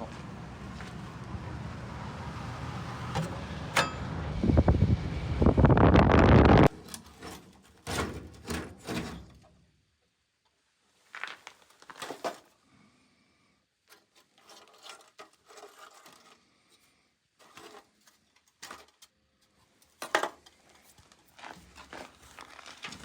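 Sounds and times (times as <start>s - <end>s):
scraping and rustling: 11.0s - 12.6s, 13.9s - 23.0s.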